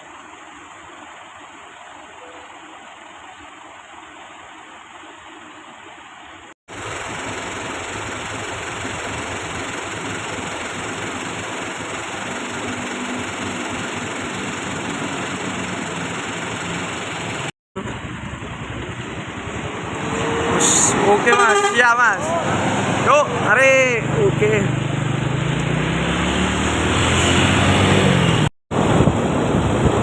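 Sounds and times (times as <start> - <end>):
truck engine running: 6.7 - 30.0.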